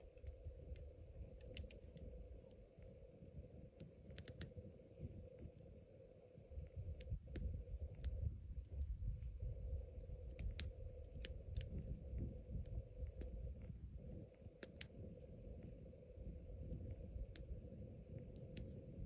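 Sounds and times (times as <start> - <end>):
sharp clicks and cracks: 0.2 - 2.6, 3.8 - 4.6, 10.2 - 11.8, 14.6 - 15.0
low rumble: 6.4 - 19.0.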